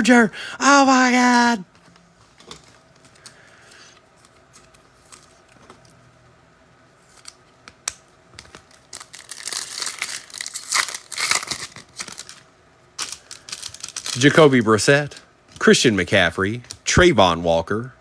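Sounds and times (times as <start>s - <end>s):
foil wrapper crinkling and tearing: 8.4s - 12.4s, 13.0s - 15.2s.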